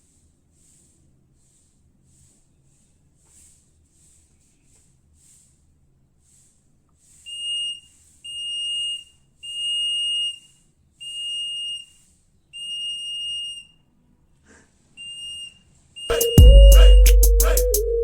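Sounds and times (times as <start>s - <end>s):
electronic buzzer beeping: 16.1s - 18.0s.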